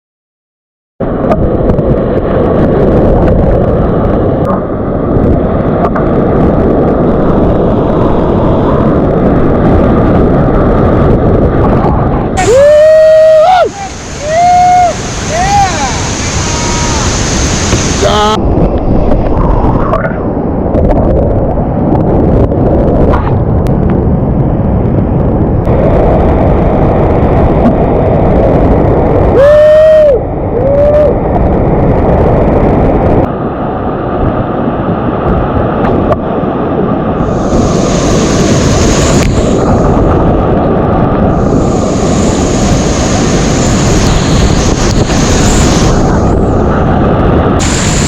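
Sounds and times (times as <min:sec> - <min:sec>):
hissing spray: 0:12.4 - 0:18.4, 0:37.2 - 0:40.2, 0:41.3 - 0:46.9, 0:47.5 - 0:48.0
whitewater rapids rushing: 0:12.4 - 0:18.4.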